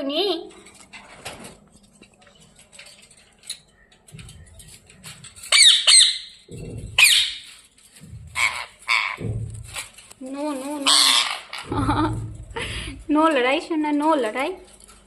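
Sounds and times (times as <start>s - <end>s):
parrot squawking: 5.5s - 7.5s, 8.3s - 9.2s, 10.8s - 11.7s.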